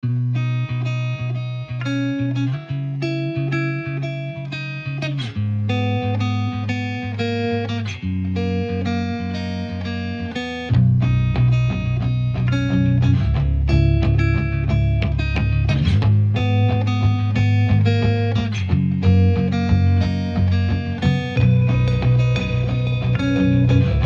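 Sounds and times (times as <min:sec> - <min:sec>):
guitar plucked notes: 0:00.0 - 0:24.0.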